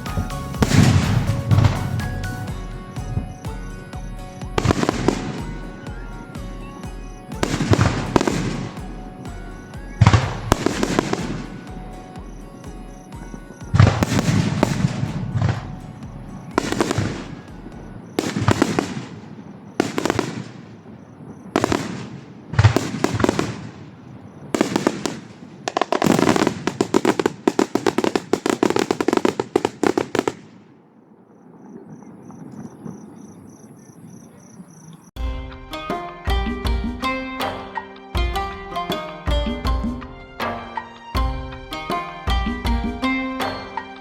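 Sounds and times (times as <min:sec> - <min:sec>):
fireworks bursting: 0:00.0 - 0:33.1
rapid crackling shells: 0:24.6 - 0:30.6.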